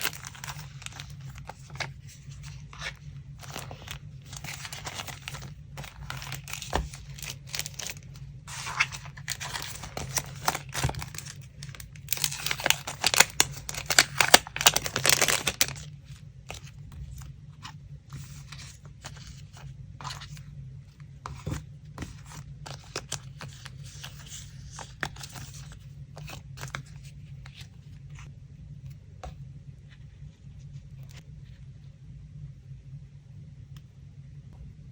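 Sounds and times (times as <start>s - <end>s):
paper rustling and tearing: 0.0s - 17.2s.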